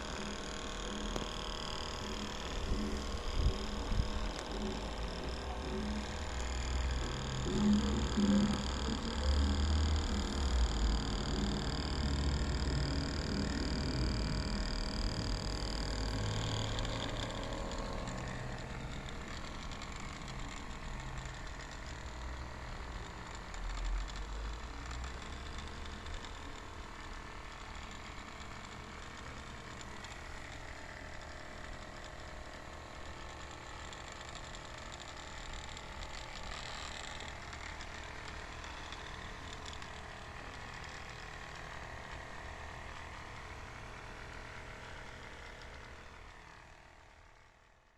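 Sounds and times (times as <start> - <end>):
small electric motor whirring: 0.0 - 47.9.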